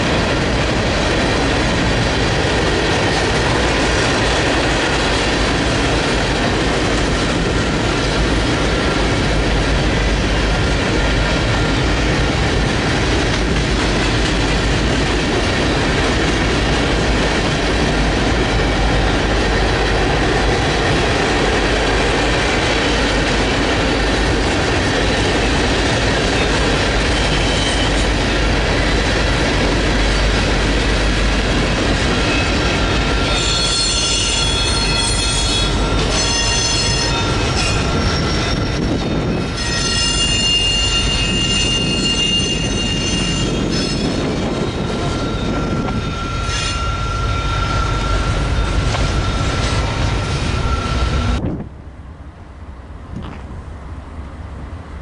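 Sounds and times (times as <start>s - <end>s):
railroad cars rumbling past: 0.0s - 55.0s
high-pitched wheel squeal: 32.2s - 51.4s.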